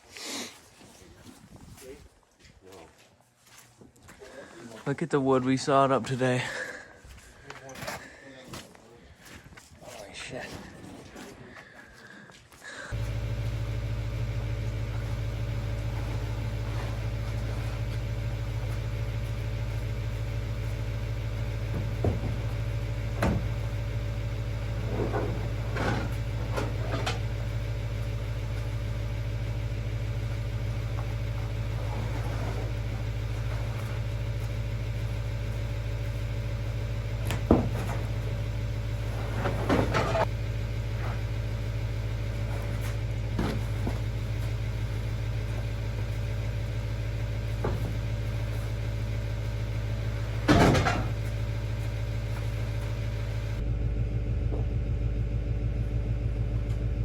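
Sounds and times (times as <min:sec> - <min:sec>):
engine idling: 0:11.4 - 0:57.0.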